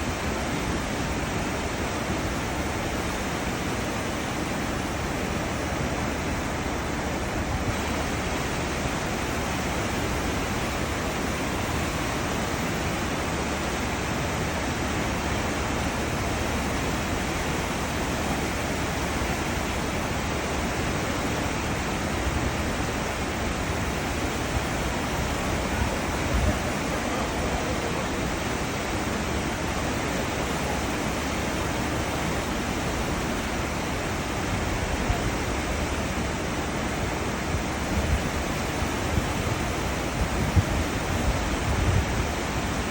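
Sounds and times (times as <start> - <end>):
churning ship wake water: 0.0 - 42.9.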